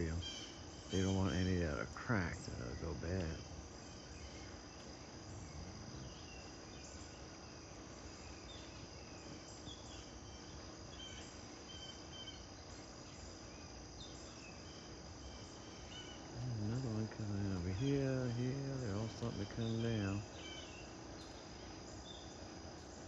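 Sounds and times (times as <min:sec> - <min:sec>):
faint bird chirps: 0:00.0 - 0:23.0
insects trilling: 0:00.0 - 0:23.0.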